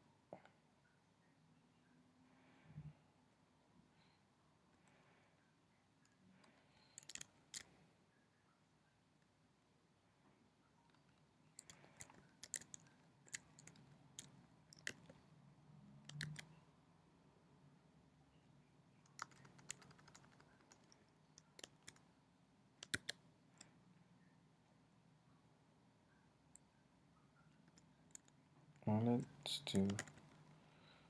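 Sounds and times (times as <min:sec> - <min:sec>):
keyboard keystrokes: 0:11.6 - 0:15.2, 0:16.1 - 0:16.5, 0:19.1 - 0:22.0, 0:22.8 - 0:23.2, 0:29.8 - 0:30.4.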